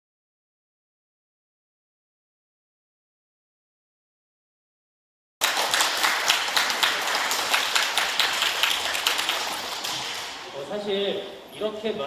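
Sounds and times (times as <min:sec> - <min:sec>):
audience applauding: 0:05.4 - 0:10.5.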